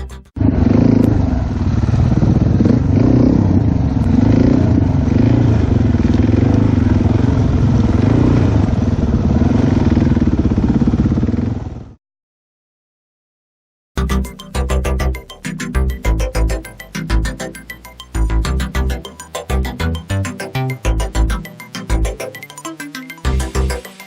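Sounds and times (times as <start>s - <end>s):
dirt bike engine running: 0.0s - 11.9s.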